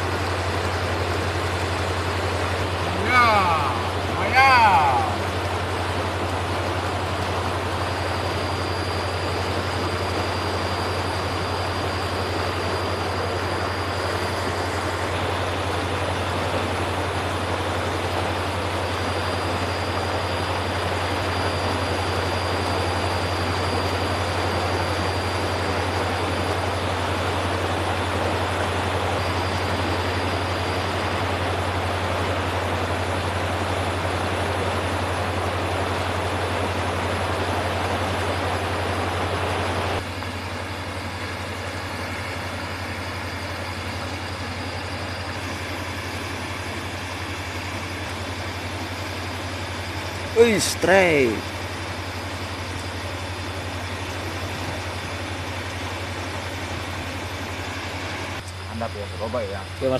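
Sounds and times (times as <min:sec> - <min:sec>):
steady rushing noise: 0:00.0 - 0:40.5
constant low hum: 0:00.0 - 0:59.9
faint high whine: 0:00.0 - 0:59.9.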